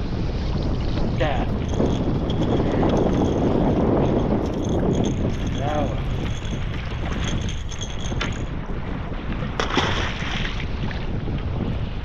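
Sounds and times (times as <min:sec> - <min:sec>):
water lapping against kayak: 0:00.0 - 0:12.0
wind buffeting microphone: 0:00.0 - 0:12.0
water splash: 0:09.5 - 0:11.0.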